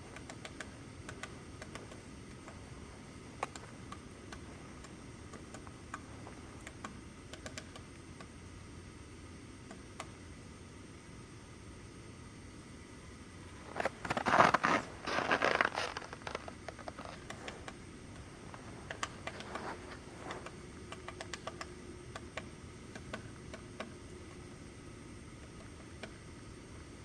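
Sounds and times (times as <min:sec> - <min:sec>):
woodpecker pecking at wood: 0:18.9 - 0:19.5.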